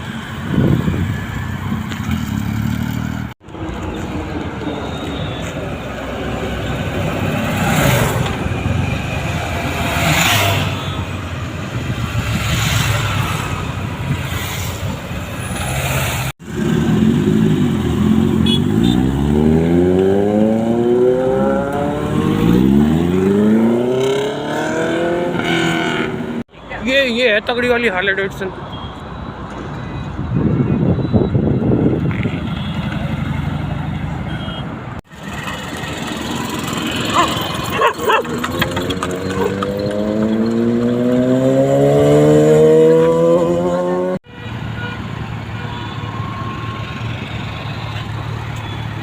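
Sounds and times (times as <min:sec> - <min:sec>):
motorcycle engines revving: 0:00.0 - 0:26.5, 0:35.0 - 0:44.3
vehicles passing: 0:00.0 - 0:49.0.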